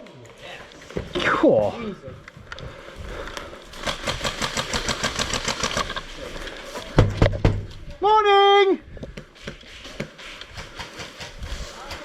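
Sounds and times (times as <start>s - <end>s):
airsoft gun full-auto burst: 3.8s - 6.0s
heavy thumps: 6.8s - 7.9s.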